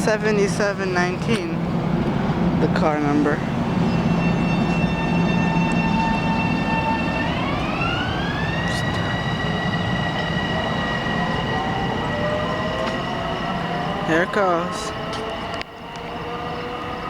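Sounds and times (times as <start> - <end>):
electric train motor whine: 3.4 - 17.0.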